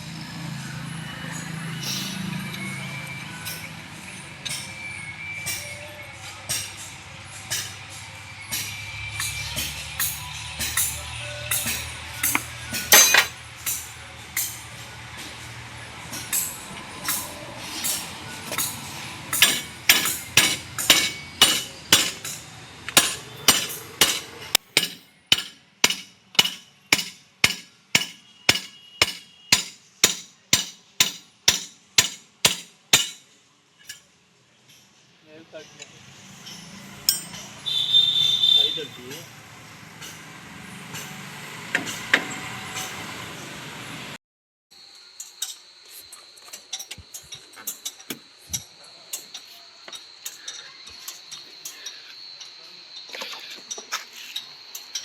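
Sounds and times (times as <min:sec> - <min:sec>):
sharp metallic strikes: 0:07.5 - 0:14.6, 0:16.1 - 0:33.2.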